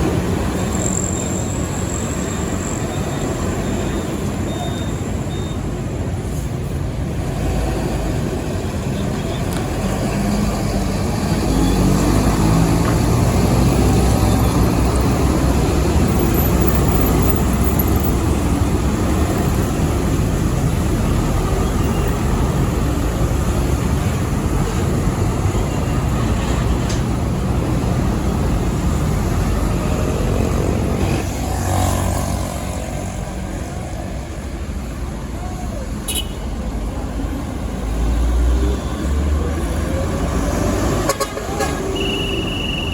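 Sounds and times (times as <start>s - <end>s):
heavy trucks passing: 0.0s - 42.9s.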